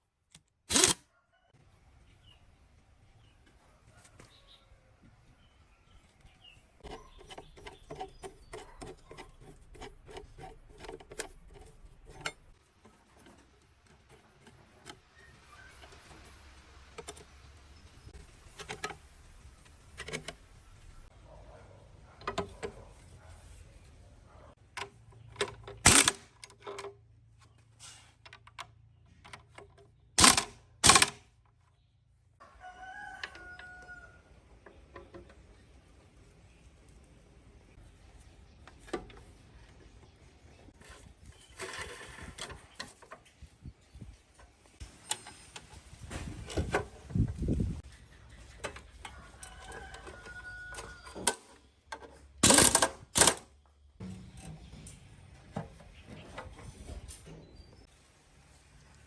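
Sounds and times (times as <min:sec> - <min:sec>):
clicks and knocks on engine parts: 0:06.8 - 0:20.5, 0:24.6 - 0:31.7, 0:48.3 - 0:54.9
rooster crowing: 0:32.4 - 0:34.3, 0:49.1 - 0:51.2.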